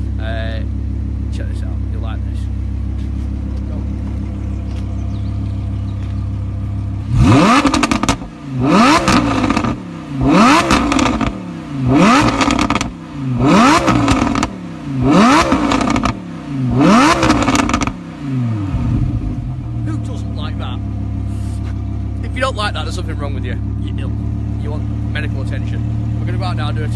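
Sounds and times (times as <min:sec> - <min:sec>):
sports car engine revving: 0:00.0 - 0:26.9
exhaust crackles and pops: 0:02.9 - 0:08.3, 0:10.6 - 0:11.4, 0:12.2 - 0:13.0, 0:13.8 - 0:14.6, 0:15.4 - 0:16.2, 0:17.0 - 0:18.0.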